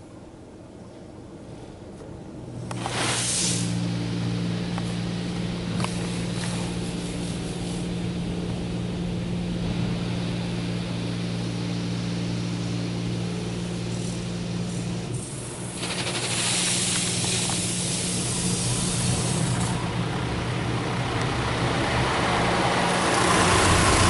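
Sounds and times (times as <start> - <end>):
water jets hissing on car body: 2.8 - 3.8, 13.9 - 19.8
low machine hum: 3.6 - 24.0.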